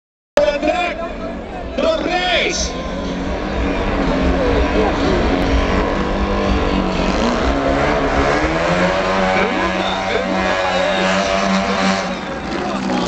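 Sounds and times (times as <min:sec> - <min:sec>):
truck engines running loud: 0:00.4 - 0:13.0
voices: 0:00.4 - 0:13.0.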